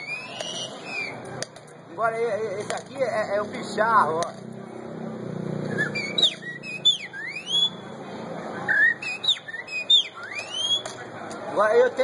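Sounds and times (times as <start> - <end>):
man whistling birdsong imitation: 0.0 - 1.2, 5.7 - 7.8, 8.7 - 10.9.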